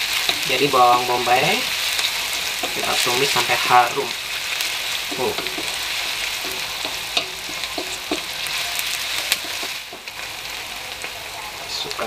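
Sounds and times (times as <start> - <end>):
onion sizzling in oil: 0.0 - 12.0
wooden spatula scraping pan: 2.0 - 10.1.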